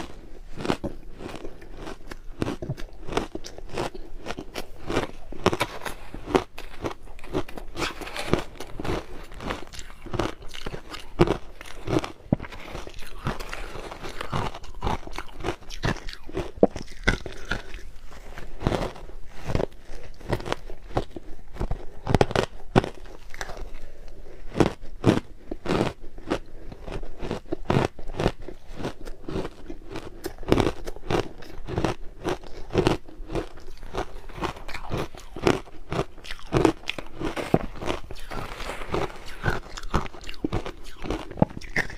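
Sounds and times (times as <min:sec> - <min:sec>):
crushed ice crunching: 0:00.6 - 0:21.2, 0:29.3 - 0:41.9.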